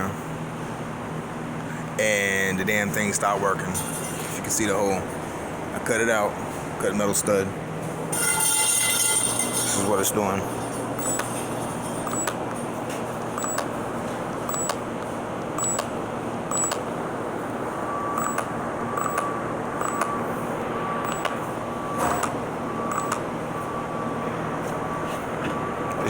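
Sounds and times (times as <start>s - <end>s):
repeating beep: 11.0s - 11.3s, 12.0s - 12.4s, 13.4s - 13.7s, 14.5s - 14.8s, 15.6s - 15.9s, 16.5s - 16.8s, 18.1s - 20.2s, 21.0s - 21.4s, 22.0s - 23.2s.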